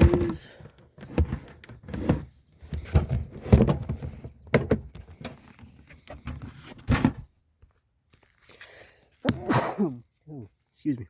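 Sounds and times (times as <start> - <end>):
camping gear knocking and thudding: 0.0 - 5.6.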